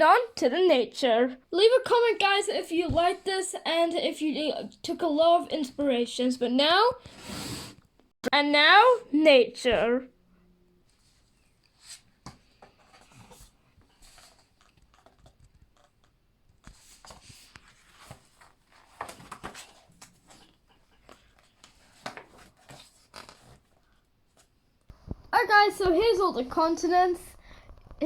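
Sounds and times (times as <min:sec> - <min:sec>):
book pages rustling: 0:10.9 - 0:24.6.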